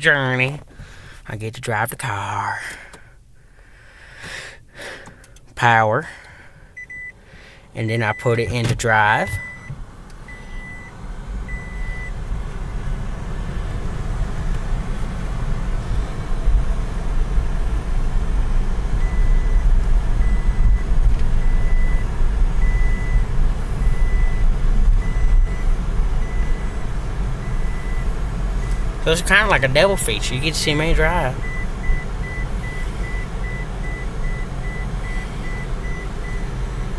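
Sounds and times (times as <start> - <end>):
car engine and road noise: 0.0 - 36.9
short high beep: 9.2 - 9.7.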